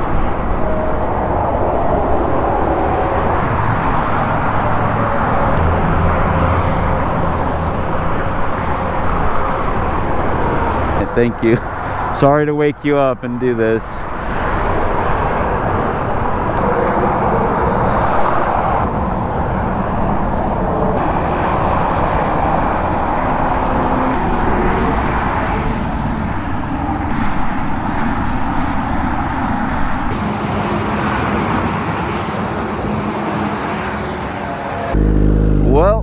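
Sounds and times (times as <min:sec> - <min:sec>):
wind rushing over microphone: 0:00.0 - 0:12.3, 0:13.2 - 0:35.1
motorcycle engine running: 0:21.0 - 0:27.2, 0:34.9 - 0:36.0.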